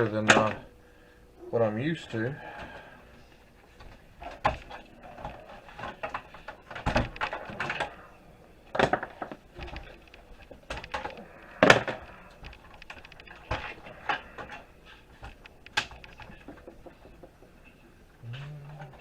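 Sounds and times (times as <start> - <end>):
computer parts knocking and rattling: 3.7 - 17.8.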